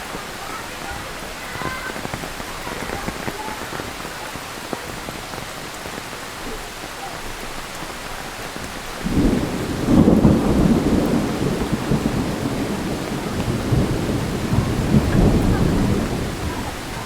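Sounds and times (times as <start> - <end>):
heavy rain falling: 0.0 - 17.0
rolling thunder: 8.8 - 17.0.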